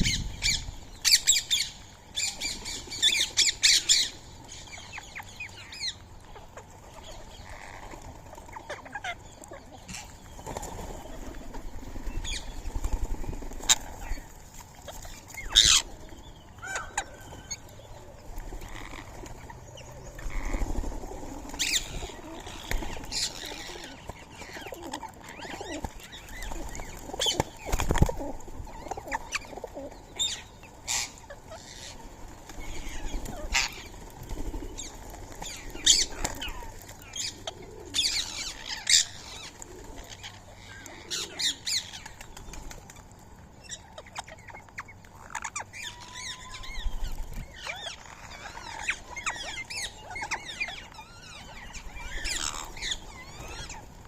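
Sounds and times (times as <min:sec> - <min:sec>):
parakeets squawking: 0:43.6 - 0:53.8.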